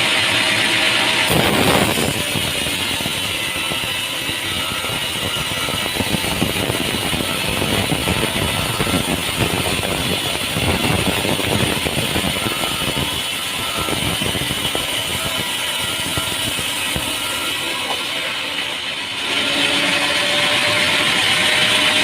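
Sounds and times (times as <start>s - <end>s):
sawmill machinery running: 0.0s - 22.0s.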